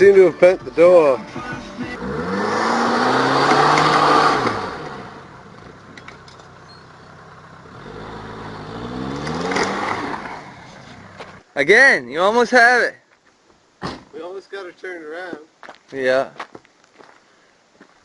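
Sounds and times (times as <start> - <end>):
vehicle engine revving: 1.8 - 11.4.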